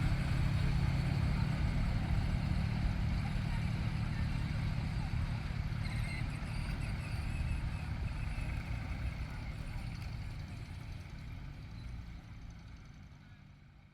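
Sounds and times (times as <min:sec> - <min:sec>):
tractor engine running: 0:00.0 - 0:05.8.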